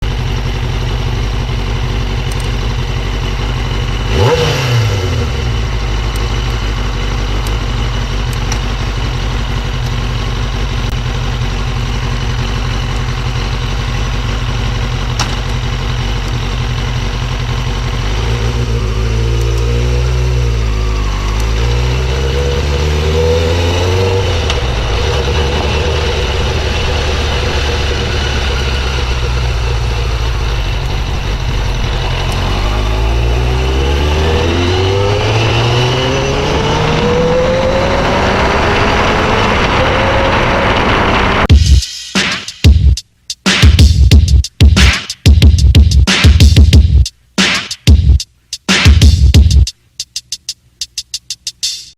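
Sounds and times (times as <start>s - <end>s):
motorcycle engine idling and revving: 0.0s - 41.8s, 43.6s - 47.1s, 47.9s - 48.2s, 48.8s - 49.7s.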